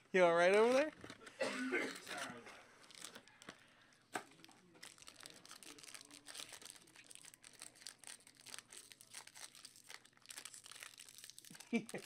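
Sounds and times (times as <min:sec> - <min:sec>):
card packs crinkling: 0:00.5 - 0:01.1, 0:02.8 - 0:03.5, 0:04.4 - 0:12.0.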